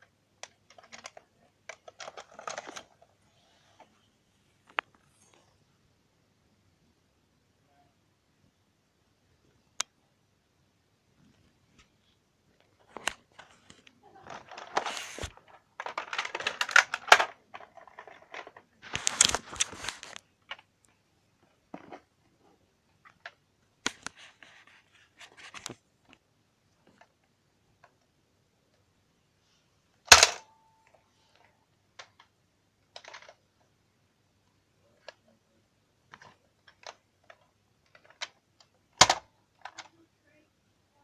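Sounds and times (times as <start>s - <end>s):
toy blaster rustling and scraping: 14.4s - 16.8s.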